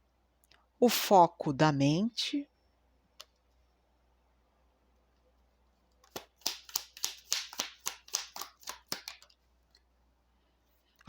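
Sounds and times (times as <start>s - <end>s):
cards being shuffled: 6.0s - 9.4s.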